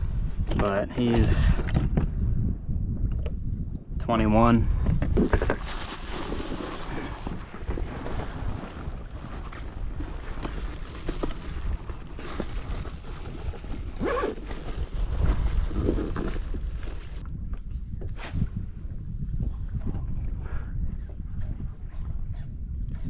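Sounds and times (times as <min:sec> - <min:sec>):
wind buffeting microphone: 0:00.0 - 0:23.0
water lapping: 0:05.8 - 0:14.0.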